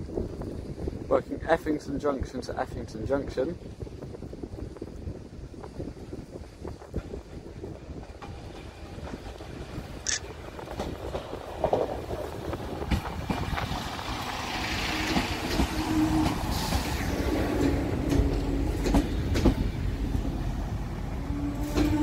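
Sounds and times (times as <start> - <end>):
train rumbling slowly: 0.0 - 22.0
wheels clicking over rail joints: 6.6 - 22.0.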